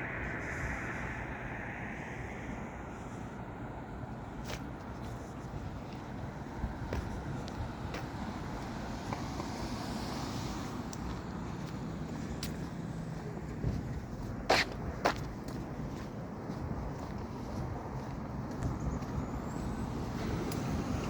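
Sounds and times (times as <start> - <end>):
road traffic rumble: 0.0 - 21.0
wind on microphone: 0.0 - 21.0.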